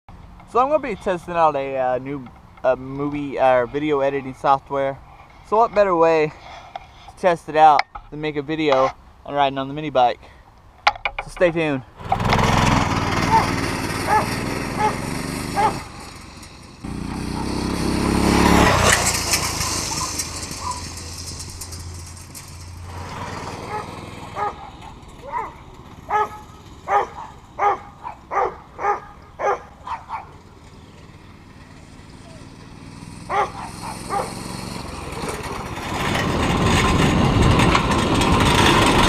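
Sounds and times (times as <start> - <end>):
small engine revving: 12.0 - 39.0
dog barking: 13.3 - 13.5, 14.1 - 15.0, 15.6 - 15.9, 23.7 - 30.3, 33.3 - 34.4.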